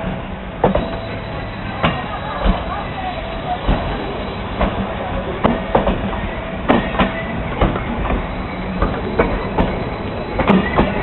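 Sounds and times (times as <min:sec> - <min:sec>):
train wheels clacking on rail joints: 0:00.0 - 0:01.2, 0:03.5 - 0:11.0
train rumble: 0:00.0 - 0:11.0.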